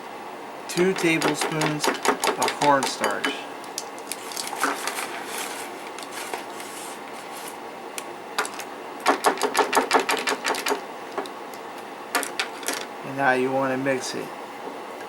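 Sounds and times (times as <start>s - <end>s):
utensil tapping against bowl: 0.8s - 3.4s.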